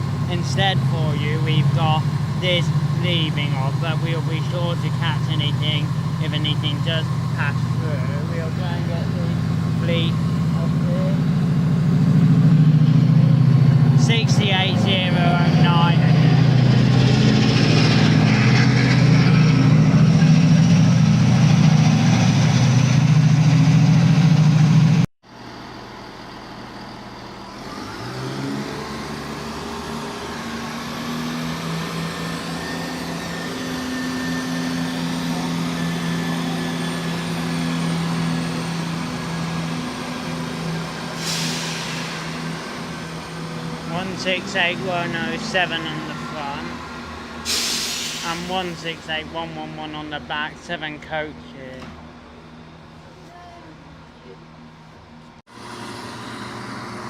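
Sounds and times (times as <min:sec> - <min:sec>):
diesel locomotive engine running: 0:00.0 - 0:57.0
diesel multiple-unit engines: 0:00.0 - 0:57.0
brief hiss: 0:47.5 - 0:48.5.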